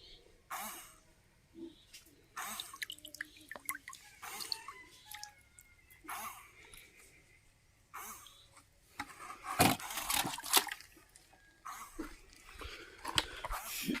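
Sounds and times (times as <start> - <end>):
water splashing and sloshing: 2.4 - 5.3, 9.6 - 11.4.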